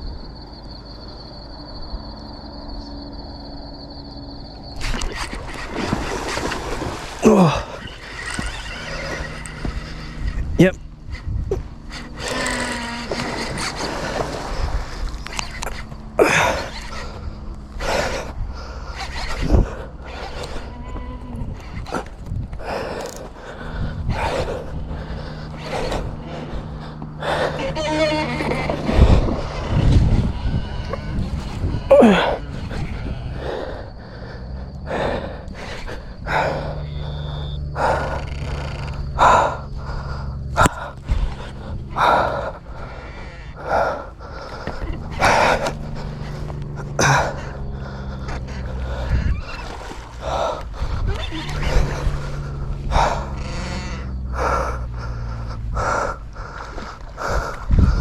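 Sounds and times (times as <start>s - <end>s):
low steady hum: 0.0s - 58.0s
fishing reel drag buzzing: 1.0s - 58.0s
man breathing hard: 22.4s - 28.0s, 28.9s - 58.0s.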